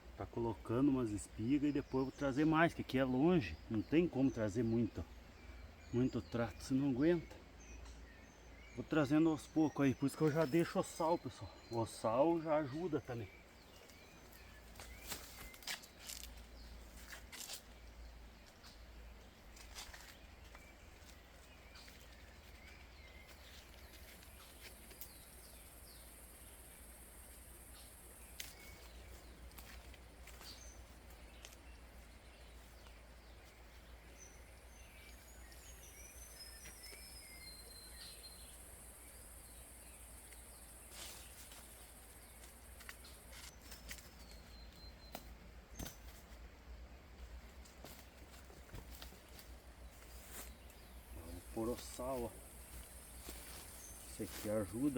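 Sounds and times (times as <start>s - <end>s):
insect droning: 19.3s - 45.0s, 47.8s - 54.9s.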